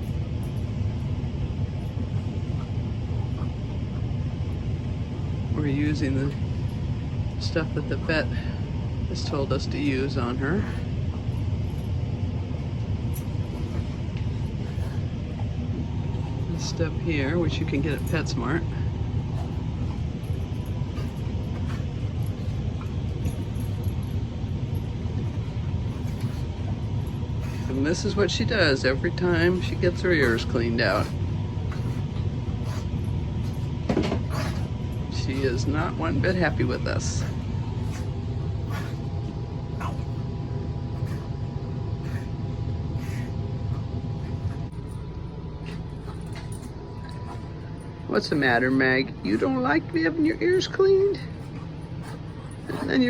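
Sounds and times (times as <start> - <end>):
faint steady hum: 0.0 - 53.0
low background rumble: 0.0 - 53.0.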